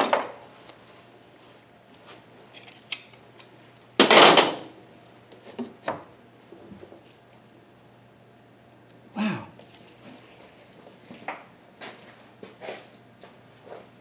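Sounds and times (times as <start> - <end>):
tools clattering: 4.0 - 4.7.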